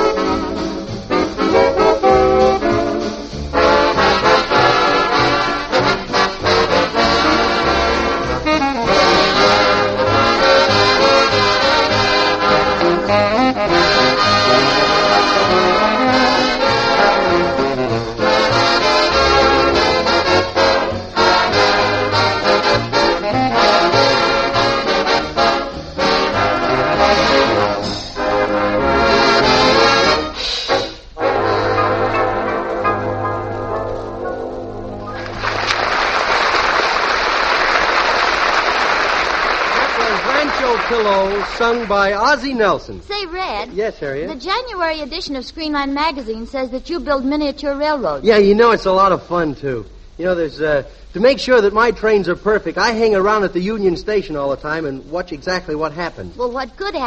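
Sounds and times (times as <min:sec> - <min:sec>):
swing orchestra with brass: 0:00.0 - 0:36.0.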